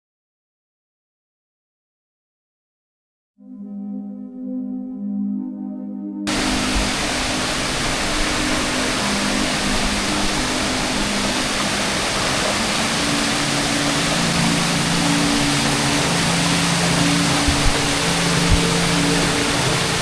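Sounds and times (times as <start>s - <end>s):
soft ambient music: 3.4s - 20.0s
waterfall rushing: 6.3s - 20.0s.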